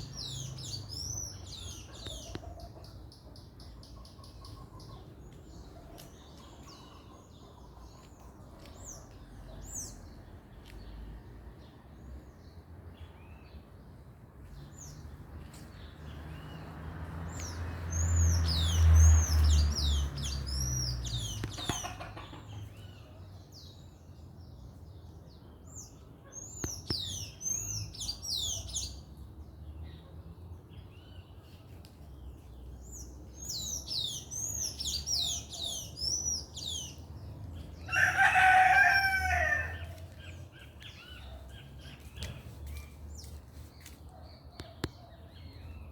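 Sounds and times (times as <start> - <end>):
songbirds chirping: 0.0 - 45.9
rooster crowing: 37.9 - 40.0.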